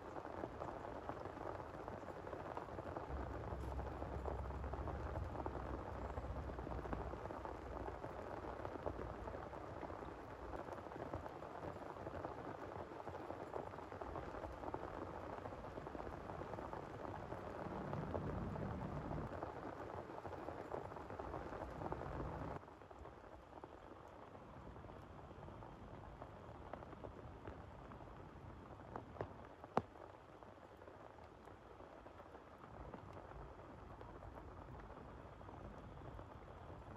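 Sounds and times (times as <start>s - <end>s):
heavy rain pattering: 0.0s - 36.9s
low rumble: 3.1s - 9.3s, 16.8s - 19.3s.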